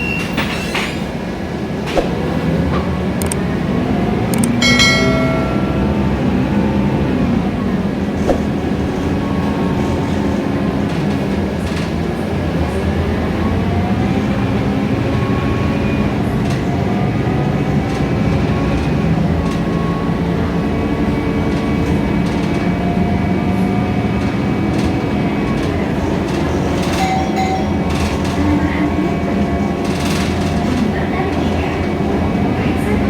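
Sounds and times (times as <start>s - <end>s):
bus engine and road drone: 0.0s - 33.0s
clicks and rattles: 3.2s - 3.4s.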